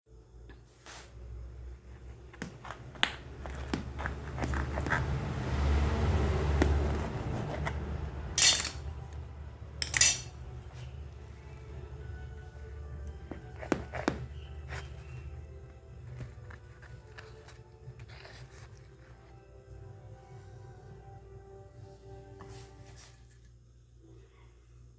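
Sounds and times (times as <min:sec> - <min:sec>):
dishes scraping: 0:08.4 - 0:08.9, 0:09.8 - 0:10.4
cutlery and dishes clinking: 0:08.4 - 0:09.0, 0:09.8 - 0:10.4.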